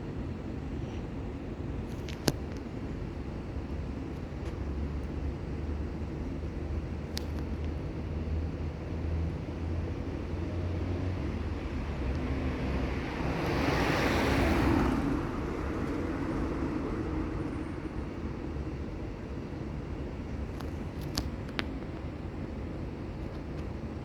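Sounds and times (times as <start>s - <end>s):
low traffic rumble: 0.0s - 24.0s
vehicle passing by: 9.0s - 18.0s.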